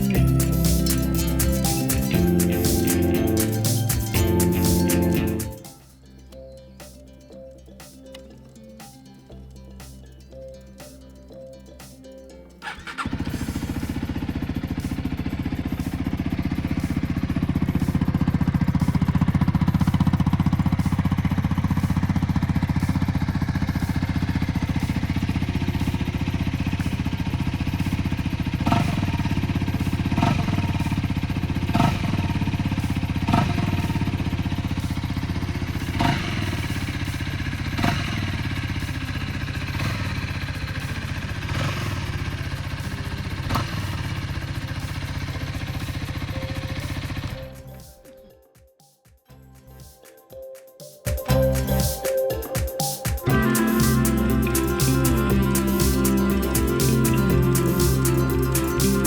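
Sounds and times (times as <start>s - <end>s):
engine throttle blips: 0.0s - 5.8s, 12.6s - 48.0s, 53.2s - 59.0s
motorcycle engine idling: 0.0s - 5.9s, 12.6s - 48.1s, 51.2s - 59.0s.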